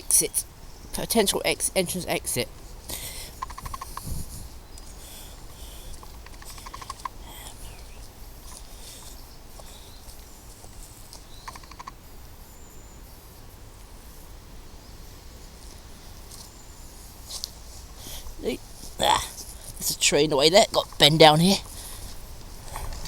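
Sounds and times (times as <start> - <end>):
rapid bird trill: 0.0 - 10.5, 11.2 - 13.3
footsteps on woodland path: 2.0 - 12.5, 15.2 - 23.0
faint bird calls: 2.6 - 13.4.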